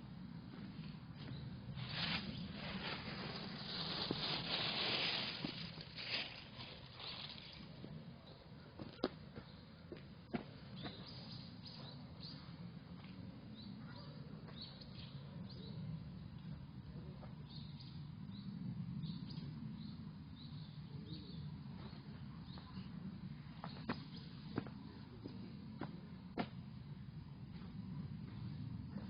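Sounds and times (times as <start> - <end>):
steady low rumble: 0.0 - 29.0
small birds chirping: 1.2 - 26.0.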